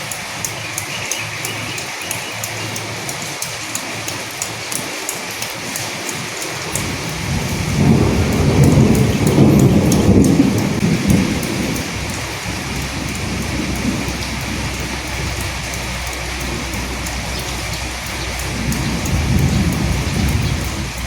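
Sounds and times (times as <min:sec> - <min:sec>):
steady rain falling: 0:00.0 - 0:21.0
low rumble of thunder: 0:06.7 - 0:21.0.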